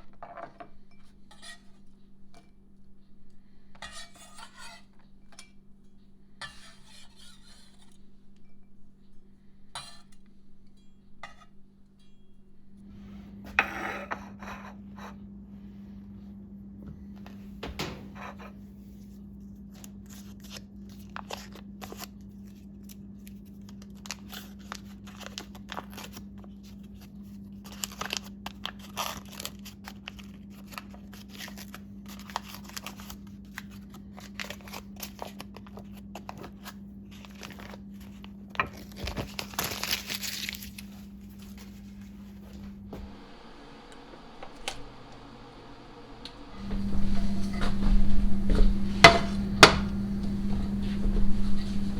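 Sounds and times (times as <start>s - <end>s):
crinkling and rustling: 22.9s - 51.9s
steady low hum: 41.0s - 51.9s.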